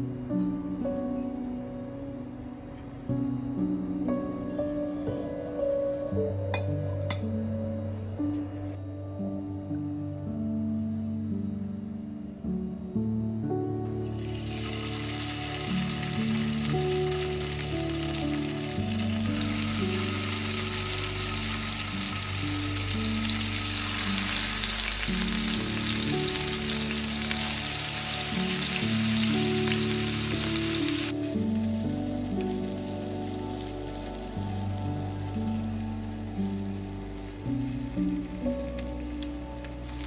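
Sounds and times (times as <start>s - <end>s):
background music: 0.0s - 40.0s
cheese sizzling in oil: 14.1s - 40.0s.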